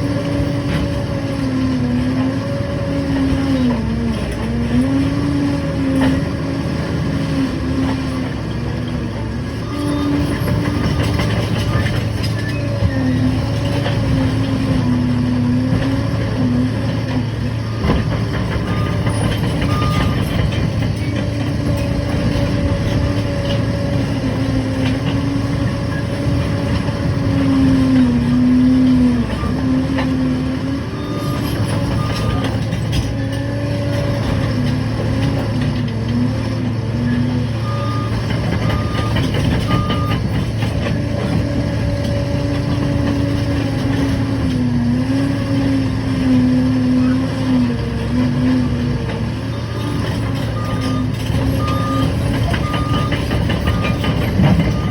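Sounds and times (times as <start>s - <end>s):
diesel engine running: 0.0s - 54.9s
reversing alarm beeping: 17.6s - 20.5s, 31.0s - 32.8s, 37.6s - 40.4s, 49.5s - 54.9s.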